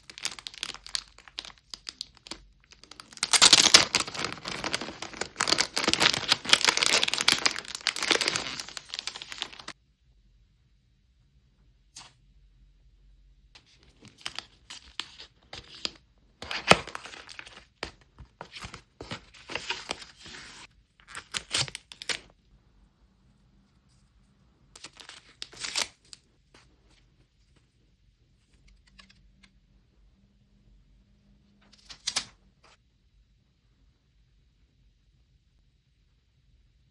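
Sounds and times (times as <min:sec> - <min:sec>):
packaging torn and crinkled: 0:00.0 - 0:09.8, 0:14.0 - 0:17.9, 0:18.5 - 0:22.3, 0:24.8 - 0:26.1.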